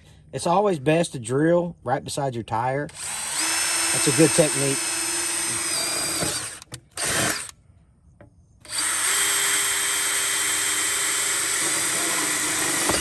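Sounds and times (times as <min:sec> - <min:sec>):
power drill boring: 0:02.9 - 0:07.5, 0:08.7 - 0:13.0.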